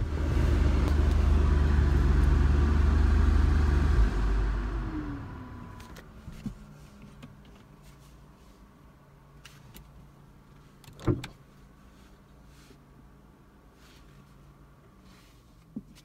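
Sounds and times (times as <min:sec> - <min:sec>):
car engine idling: 0:00.0 - 0:05.8.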